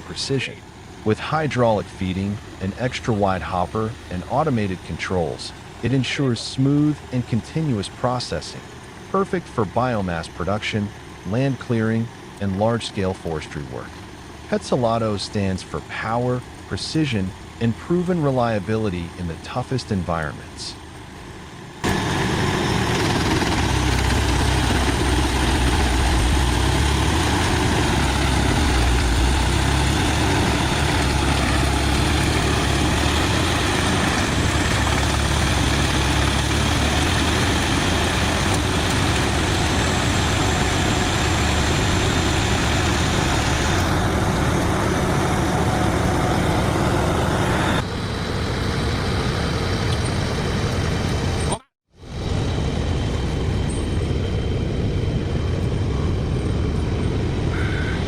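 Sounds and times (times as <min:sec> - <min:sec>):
wood chipper running: 0:21.8 - 0:51.5.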